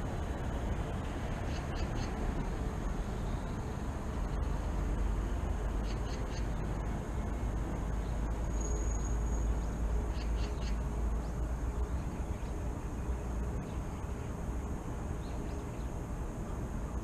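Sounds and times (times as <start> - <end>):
distant traffic rumble: 0.0 - 17.0
bird chirps: 5.8 - 6.6, 8.0 - 12.6.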